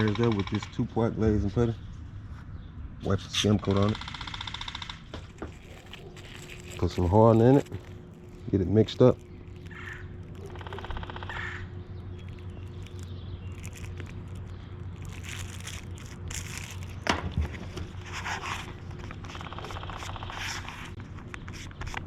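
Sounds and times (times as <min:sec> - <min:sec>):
steady low hum: 0:00.0 - 0:22.0
plastic spreader scraping putty: 0:05.3 - 0:11.0, 0:12.2 - 0:22.0.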